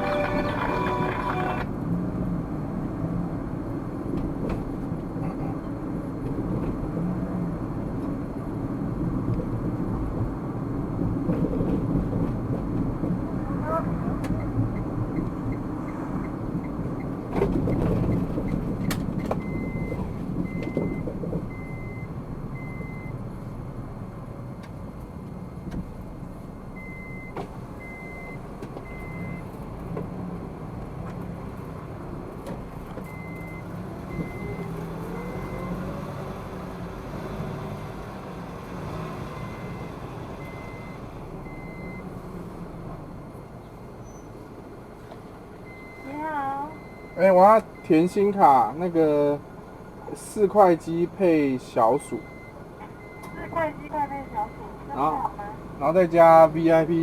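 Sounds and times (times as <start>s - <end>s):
short electronic beeps: 0.0s - 1.7s, 52.1s - 54.7s
car engine humming: 0.0s - 2.0s.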